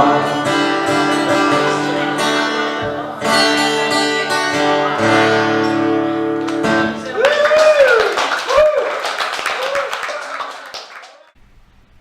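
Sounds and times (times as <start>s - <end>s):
acoustic guitar strumming chords: 0.0s - 7.2s.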